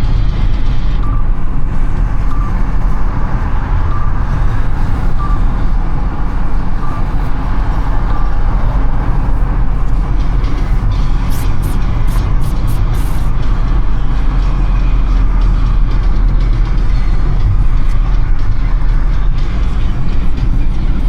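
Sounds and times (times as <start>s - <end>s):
car road and engine rumble: 0.0s - 21.0s
short faint beep: 1.0s - 1.5s, 2.2s - 3.2s, 3.8s - 5.7s.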